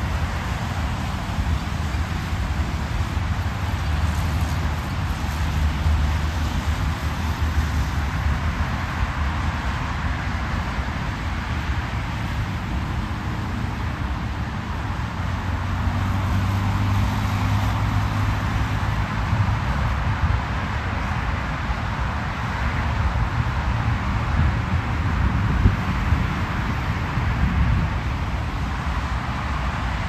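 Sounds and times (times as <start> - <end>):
car driving at highway speed: 0.0 - 30.0.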